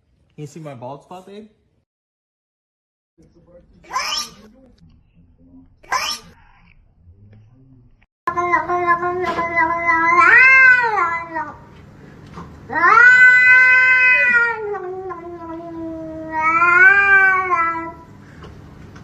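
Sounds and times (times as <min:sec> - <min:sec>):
cat yowling: 0:03.9 - 0:04.4, 0:05.9 - 0:06.4, 0:08.3 - 0:11.6, 0:12.7 - 0:18.1.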